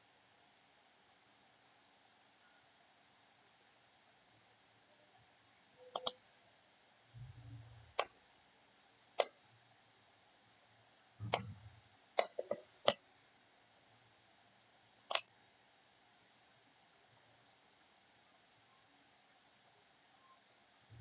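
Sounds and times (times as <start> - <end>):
computer mouse clicking: 5.9 - 6.2, 9.2 - 9.4, 11.2 - 11.6, 12.2 - 13.0, 15.1 - 15.3.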